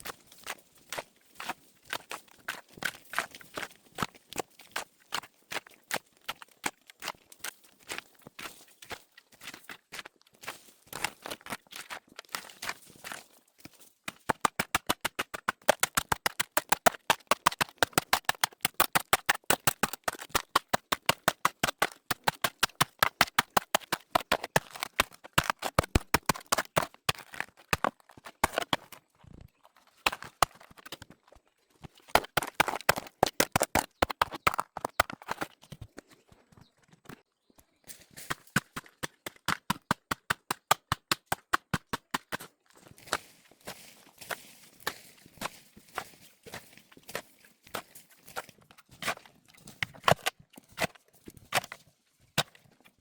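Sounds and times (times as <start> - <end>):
rapid hand tool strikes: 14.2 - 28.7.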